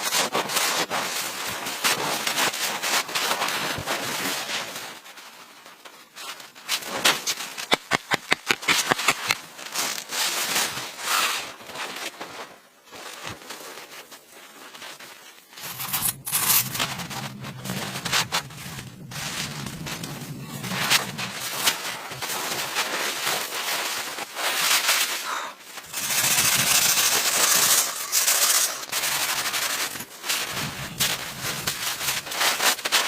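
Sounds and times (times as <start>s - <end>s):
rustling and scraping handling noises: 5.2s - 25.1s
sharp crunches or snaps: 7.2s - 9.5s
low rumble: 15.6s - 22.5s, 30.6s - 32.2s.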